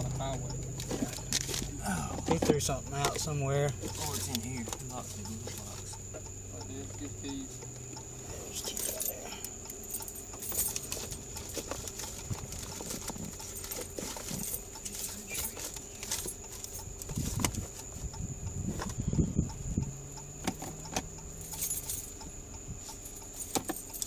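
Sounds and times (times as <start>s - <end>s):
keys jangling in a lock: 23.1s - 24.0s.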